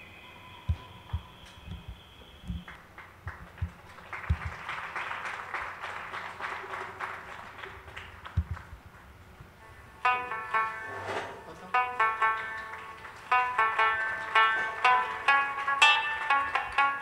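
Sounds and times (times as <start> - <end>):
low thuds: 0.6 - 4.7, 8.2 - 9.6
audience clapping: 1.0 - 9.2, 12.0 - 17.0.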